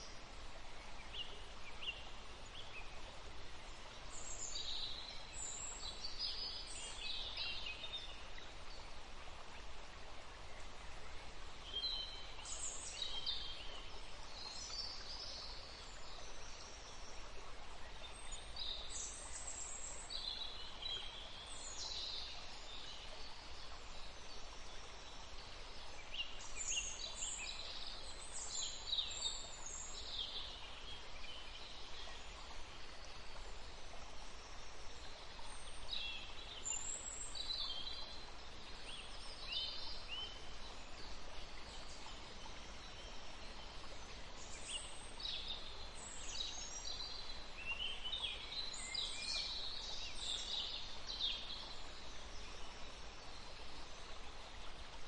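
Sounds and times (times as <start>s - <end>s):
background hiss: 0.0s - 55.0s
songbirds chirping: 0.0s - 55.0s.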